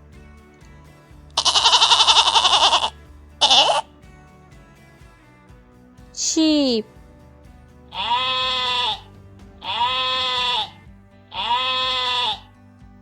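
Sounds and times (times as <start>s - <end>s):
sheep bleating: 1.4s - 3.8s, 7.9s - 12.5s.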